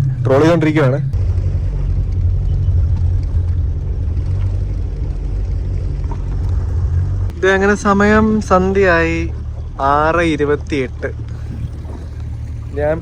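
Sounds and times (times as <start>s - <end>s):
boat motor droning: 0.0s - 13.0s.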